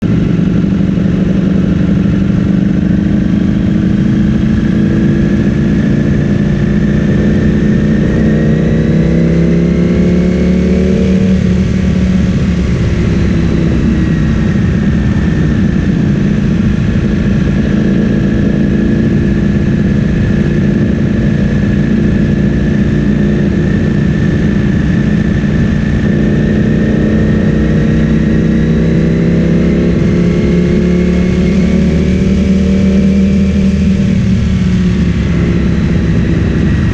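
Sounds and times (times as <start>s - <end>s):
motorcycle engine revving: 0.0s - 36.9s.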